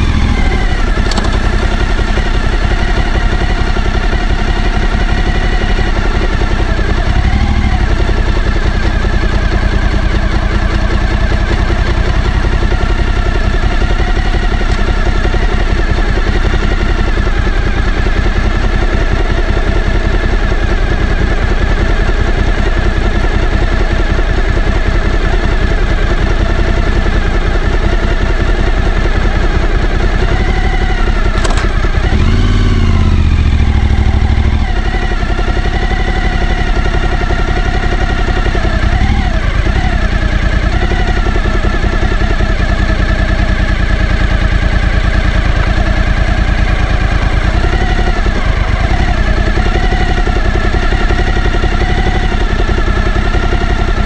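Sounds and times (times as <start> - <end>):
motorcycle engine running: 0.0 - 54.0
sharp click: 1.0 - 1.5, 31.3 - 31.9.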